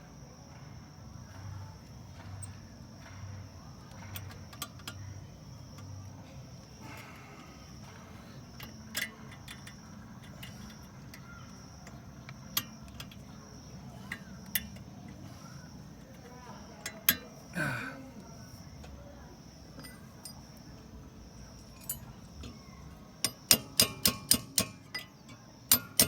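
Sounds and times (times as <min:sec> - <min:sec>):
metallic clicks of tools: 0:03.9 - 0:05.1, 0:08.4 - 0:13.4, 0:16.8 - 0:17.4, 0:21.6 - 0:26.0.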